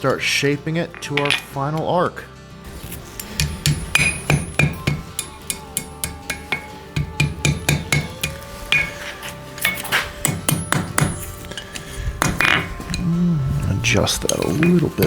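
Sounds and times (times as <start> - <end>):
hammer striking steel on anvil: 2.9 - 13.1.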